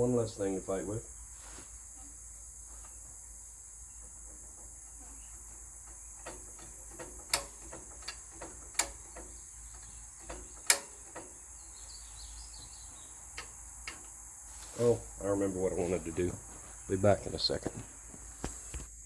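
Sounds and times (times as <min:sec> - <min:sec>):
insects chirring: 0:00.0 - 0:19.0
sharp clicks and knocks: 0:04.0 - 0:11.6, 0:13.2 - 0:14.2.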